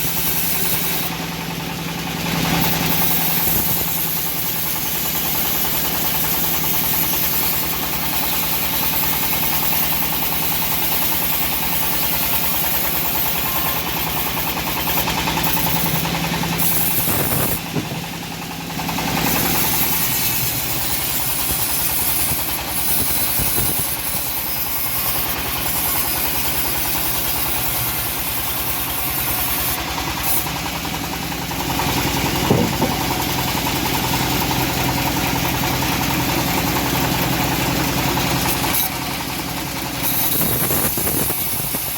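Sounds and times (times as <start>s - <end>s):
bandsaw mill sawing wood: 0.0s - 41.9s
sharp knock: 32.5s - 33.2s.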